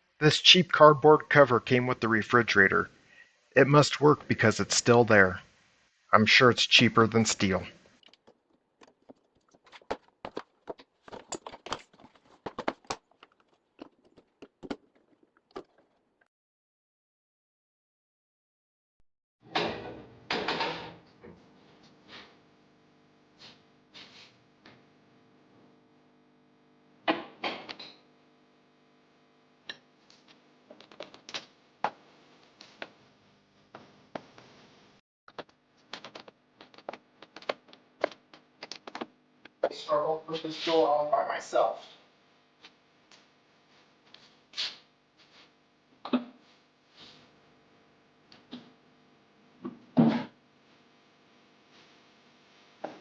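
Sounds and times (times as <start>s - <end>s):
small rattles: 8.0s - 16.2s
hands tapping on cardboard: 8.1s - 15.8s.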